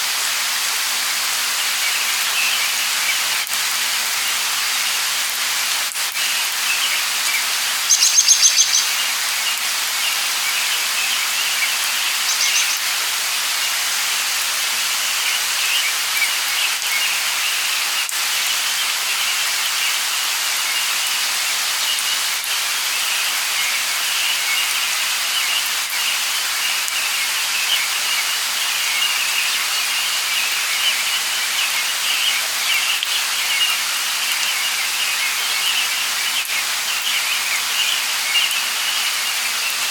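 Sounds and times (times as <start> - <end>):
light rain hissing: 0.0 - 39.9
birds chirping: 6.3 - 14.1, 21.8 - 39.9.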